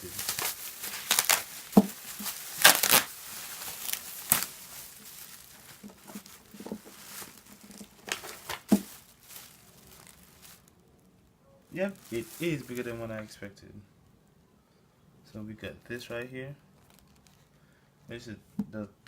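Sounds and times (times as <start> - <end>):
packaging rustling and crinkling: 0.0 - 11.2, 11.8 - 13.1, 16.7 - 17.5.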